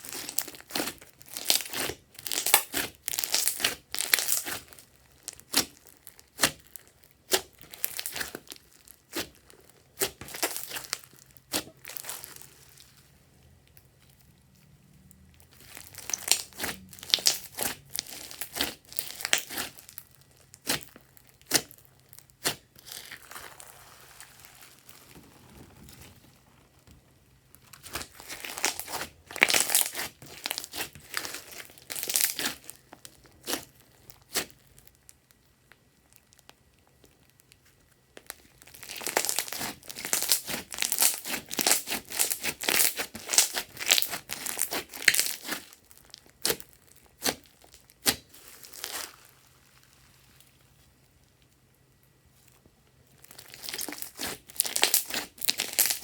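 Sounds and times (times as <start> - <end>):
slime squishing with clicks and pops: 0.1 - 12.3, 13.6 - 23.2, 27.5 - 49.0, 51.2 - 56.0.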